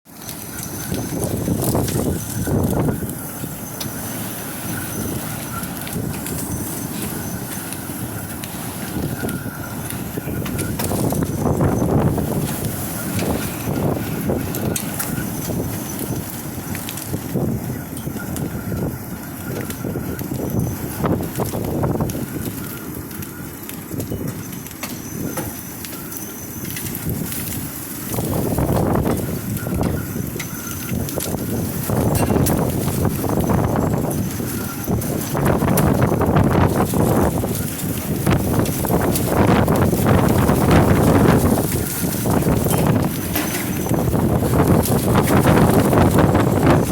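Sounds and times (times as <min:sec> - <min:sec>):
wind gusting on microphone: 0:00.0 - 0:46.9
hailstones clattering: 0:00.1 - 0:46.9
wind rushing: 0:27.0 - 0:46.9.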